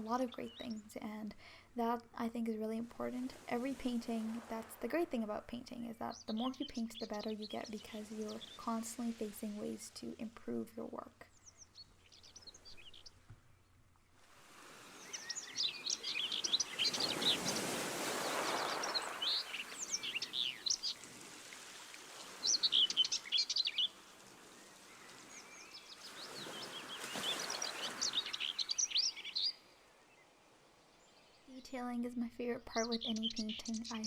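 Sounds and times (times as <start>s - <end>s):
birds chirping: 0.0s - 34.0s
sea waves washing in: 14.2s - 29.4s.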